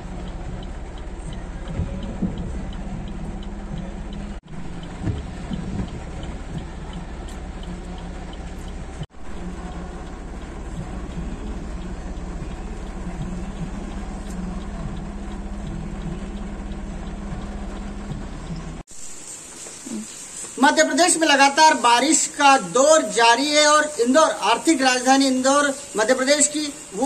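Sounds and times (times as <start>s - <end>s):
low engine hum: 0.0s - 18.9s
heavy rain and water: 0.0s - 27.0s.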